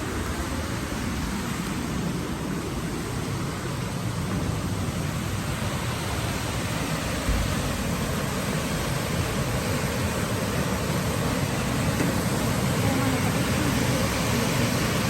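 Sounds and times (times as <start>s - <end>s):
waterfall rushing: 0.0s - 15.0s
low thump: 7.2s - 7.7s.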